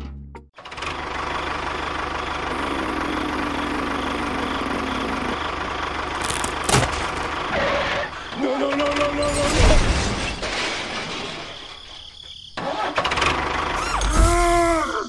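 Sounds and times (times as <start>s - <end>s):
small engine idling: 0.6s - 8.5s.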